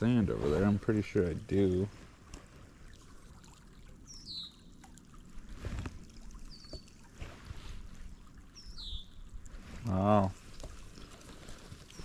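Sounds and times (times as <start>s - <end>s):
songbird calls: 4.1s - 4.7s, 8.5s - 9.2s.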